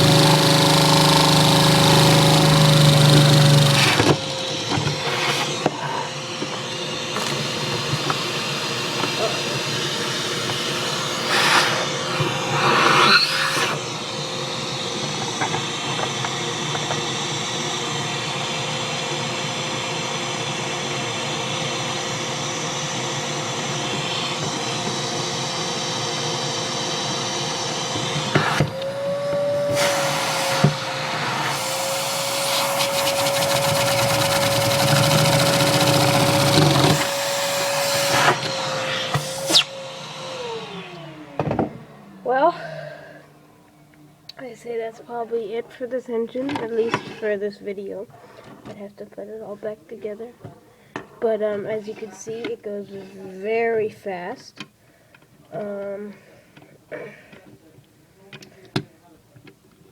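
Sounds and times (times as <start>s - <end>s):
vacuum cleaner running: 0.0s - 44.8s
toy piston engine running: 32.8s - 37.1s.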